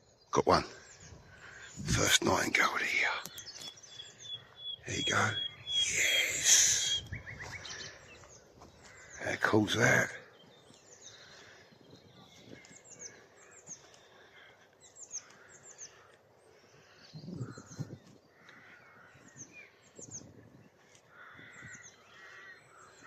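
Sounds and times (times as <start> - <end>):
nightingale singing: 0.0 - 14.1.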